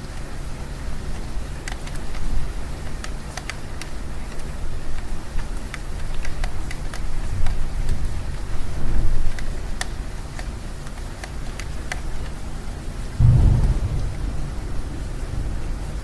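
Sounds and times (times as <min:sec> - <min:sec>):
rain on window: 0:00.0 - 0:16.0
drops ticking on window: 0:01.0 - 0:16.0
low rumble: 0:13.2 - 0:16.0.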